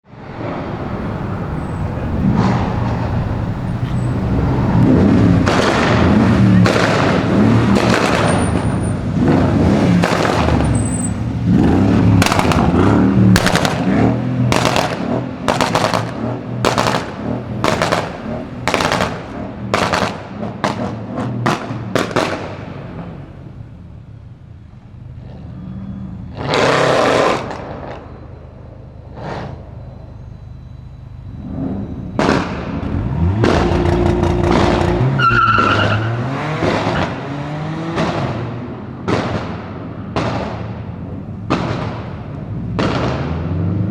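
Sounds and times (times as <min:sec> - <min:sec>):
loud exhaust bangs: 0:00.2 - 0:24.0, 0:30.8 - 0:43.9
car engine revving: 0:00.3 - 0:23.7, 0:31.3 - 0:39.5.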